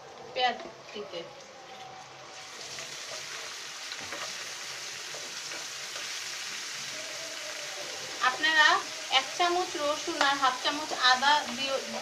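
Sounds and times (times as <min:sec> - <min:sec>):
onions sizzling in hot oil: 0:02.1 - 0:12.0
spatula stirring in pan: 0:02.4 - 0:06.9.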